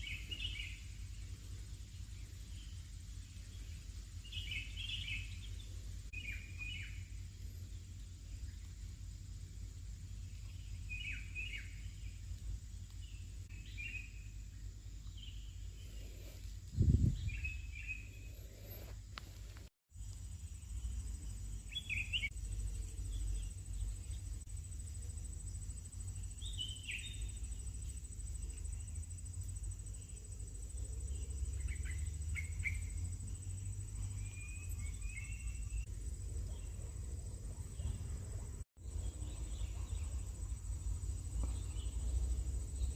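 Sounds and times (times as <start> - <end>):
bird chirps: 0.0 - 1.2, 1.9 - 8.9, 10.1 - 12.2, 12.8 - 18.9, 20.5 - 24.4, 26.1 - 29.0, 29.9 - 40.5
low outdoor rumble: 0.0 - 42.9
high insect trill: 19.9 - 42.9
rising whistled bird notes: 34.0 - 35.9.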